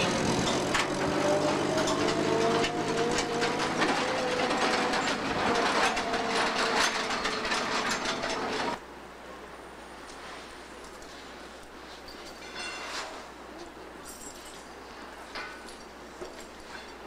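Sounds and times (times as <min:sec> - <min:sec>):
whining squeal of railroad cars: 0:00.0 - 0:08.8
metallic clanks and knocks: 0:00.3 - 0:08.8, 0:12.3 - 0:13.2.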